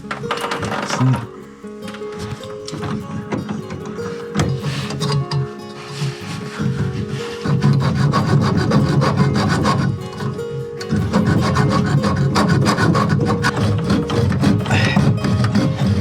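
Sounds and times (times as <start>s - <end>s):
hacksaw cutting through pipe: 0.0s - 1.4s, 3.7s - 16.0s.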